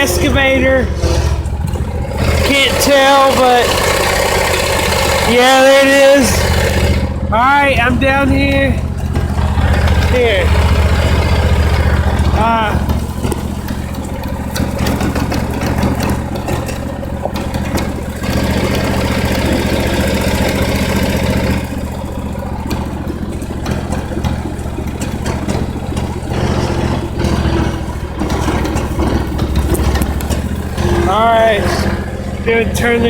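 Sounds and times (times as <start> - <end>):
riding mower engine running: 0.0 - 33.0
clicks and rattles: 8.4 - 33.0.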